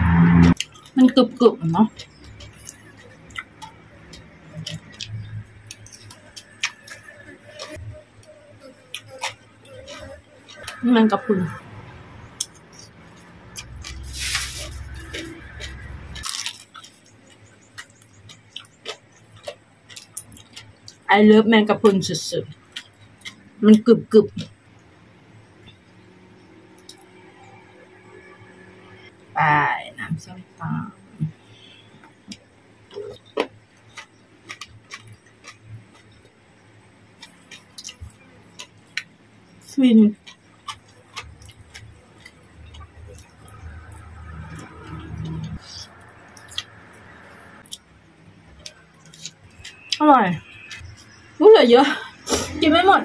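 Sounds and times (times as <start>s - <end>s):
low hum: 0.0s - 8.3s
wet chewing and squishing: 1.8s - 7.9s, 12.3s - 21.1s, 32.3s - 36.4s, 37.1s - 39.6s, 40.2s - 47.9s, 48.5s - 51.4s.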